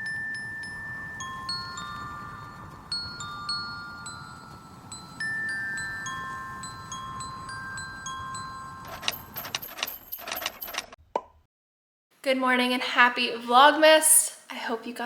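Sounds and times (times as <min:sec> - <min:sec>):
slow chime notes ringing: 0:00.0 - 0:08.9.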